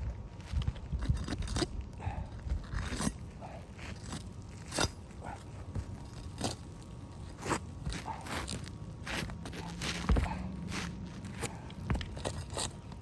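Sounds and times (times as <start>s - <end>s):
footsteps on shingle roof: 5.6s - 12.9s.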